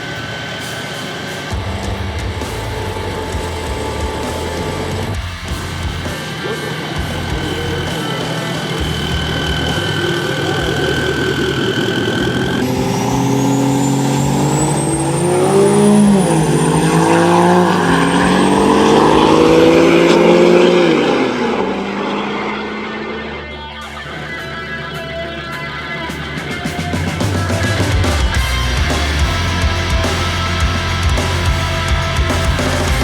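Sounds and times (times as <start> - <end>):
high whine: 0.0 - 33.0
truck accelerating and shifting gears: 1.6 - 6.1, 8.8 - 23.4.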